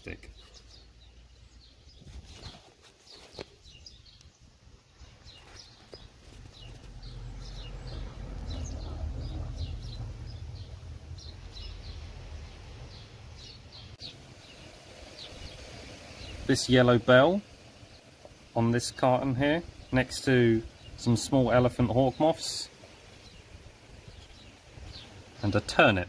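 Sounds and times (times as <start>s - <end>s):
small birds chirping: 0.0s - 26.0s
low rumble: 6.2s - 14.0s.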